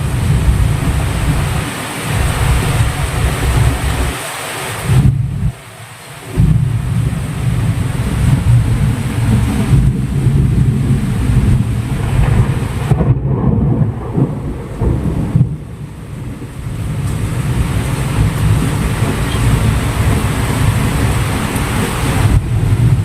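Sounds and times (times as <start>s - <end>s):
rain hissing: 0.0s - 23.0s
continuous low rumble: 6.3s - 23.0s.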